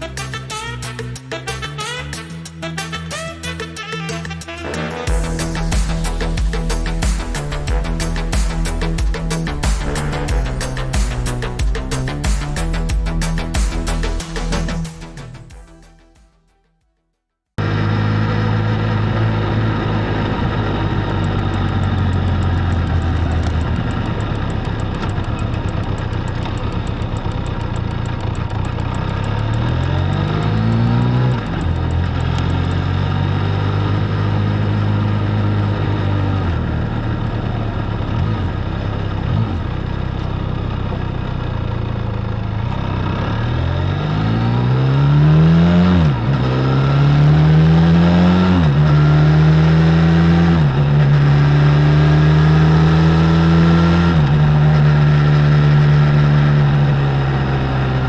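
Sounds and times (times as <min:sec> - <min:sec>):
motorcycle engine shifting gears: 0:17.6 - 0:58.0.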